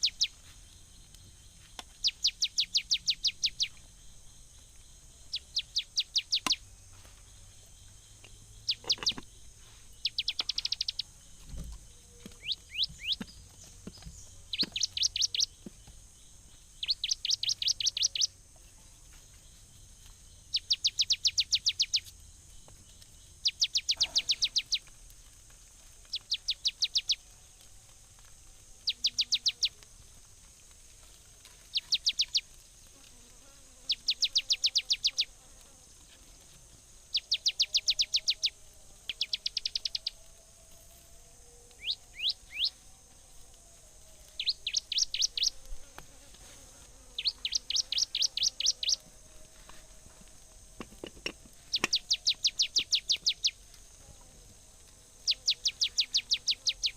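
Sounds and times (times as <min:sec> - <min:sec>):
bird rapid high chirps: 0:00.0 - 0:00.4, 0:01.9 - 0:03.7, 0:05.3 - 0:06.7, 0:08.7 - 0:09.2, 0:10.0 - 0:11.1, 0:12.4 - 0:13.4, 0:14.5 - 0:15.5, 0:16.8 - 0:18.3, 0:20.5 - 0:22.0, 0:23.4 - 0:24.8, 0:26.1 - 0:27.2, 0:31.7 - 0:32.4, 0:37.1 - 0:38.5, 0:39.1 - 0:40.2, 0:41.8 - 0:42.7, 0:44.4 - 0:45.6, 0:47.2 - 0:49.0, 0:51.7 - 0:53.6, 0:55.3 - 0:56.9
high insect hiss: 0:00.0 - 0:56.9.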